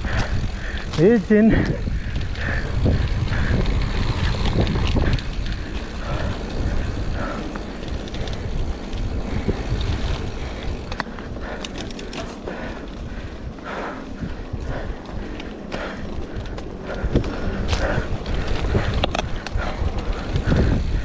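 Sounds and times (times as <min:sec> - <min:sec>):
bike rattling over ground: 0:00.0 - 0:21.0
bike tyres on mud: 0:00.0 - 0:21.0
sharp clicks: 0:10.8 - 0:12.5.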